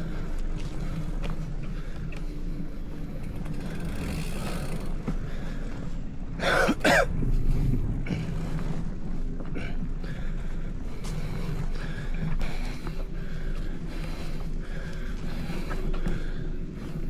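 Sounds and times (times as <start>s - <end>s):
low rumble: 0.0s - 17.0s
person coughing: 6.4s - 7.1s.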